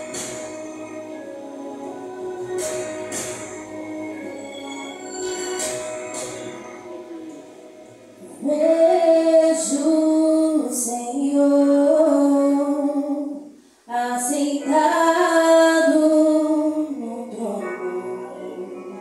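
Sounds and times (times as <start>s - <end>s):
woman singing worship song: 8.2s - 19.0s.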